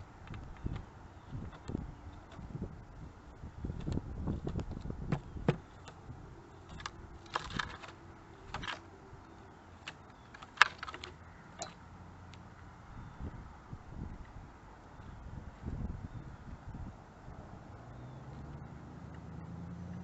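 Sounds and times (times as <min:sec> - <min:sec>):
woodpecker pecking at wood: 0:03.7 - 0:12.4.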